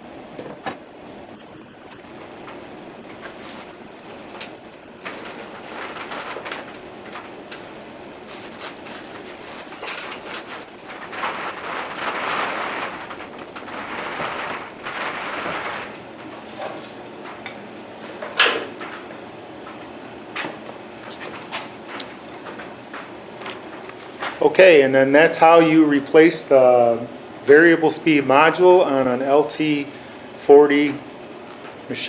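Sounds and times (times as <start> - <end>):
rustling: 1.9 - 24.5.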